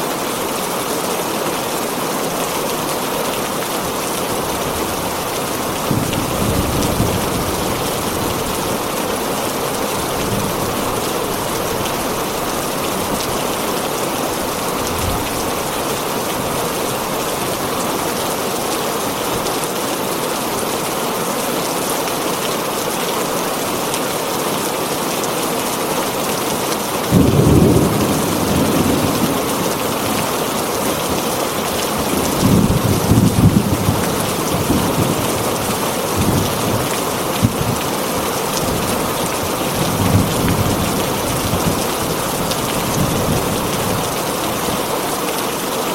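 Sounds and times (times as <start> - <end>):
heavy rain on a tin roof: 0.0 - 45.9
low rolls of thunder: 5.8 - 8.6, 27.1 - 30.2.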